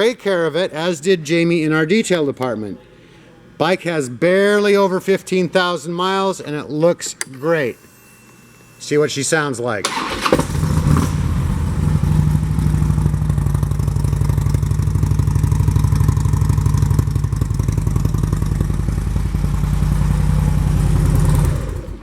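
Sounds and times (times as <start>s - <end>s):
motorcycle engine starting and idling: 9.8s - 22.0s.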